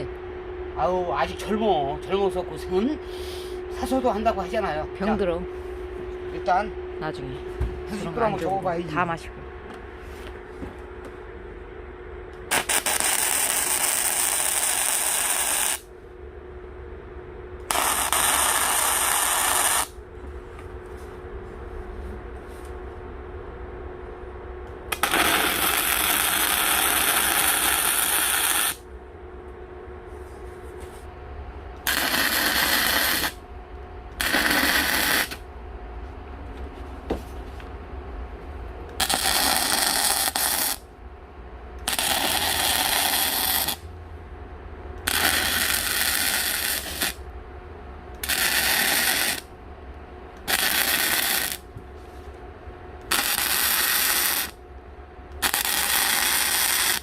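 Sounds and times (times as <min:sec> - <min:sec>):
steady low hum: 0:00.0 - 0:57.0
welding arc crackling: 0:12.4 - 0:15.9, 0:17.6 - 0:20.0, 0:24.9 - 0:28.8, 0:31.8 - 0:33.4, 0:34.2 - 0:35.4, 0:39.0 - 0:40.8, 0:41.8 - 0:43.9, 0:45.0 - 0:47.2, 0:48.2 - 0:49.5, 0:50.4 - 0:51.7, 0:53.0 - 0:54.6, 0:55.4 - 0:57.0.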